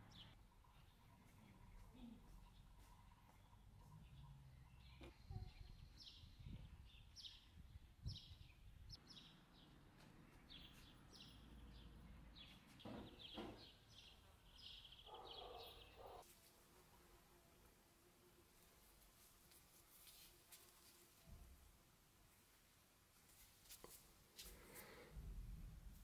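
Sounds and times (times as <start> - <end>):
small bird chirping: 0.0 - 16.2
soft knocks: 12.8 - 13.8.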